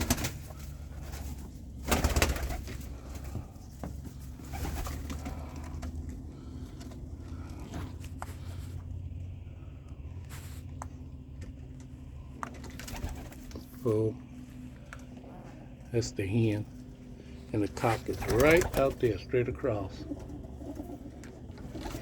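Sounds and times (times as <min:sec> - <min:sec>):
pigeons cooing: 0:00.0 - 0:09.6, 0:17.6 - 0:22.0.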